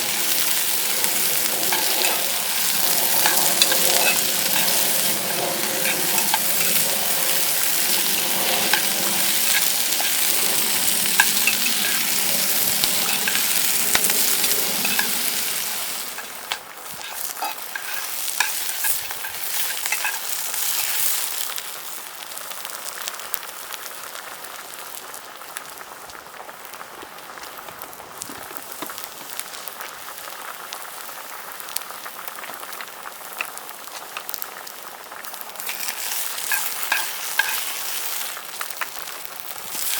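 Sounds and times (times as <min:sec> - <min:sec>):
food sizzling in a frying pan: 0:00.0 - 0:39.9
small clicks and ticks: 0:00.9 - 0:15.5.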